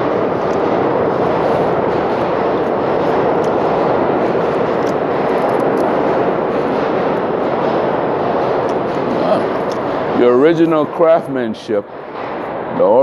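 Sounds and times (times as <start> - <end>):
subway train wheels rumbling: 0.0 - 13.0.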